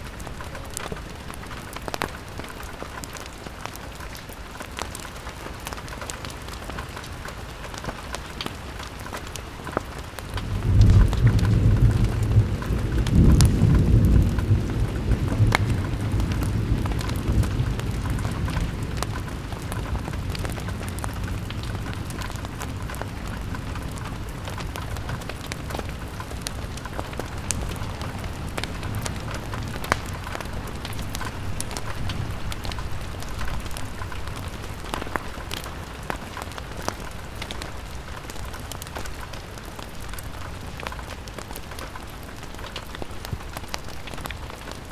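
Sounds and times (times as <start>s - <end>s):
rain on a window: 0.0s - 44.9s
low roll of thunder: 10.3s - 35.6s.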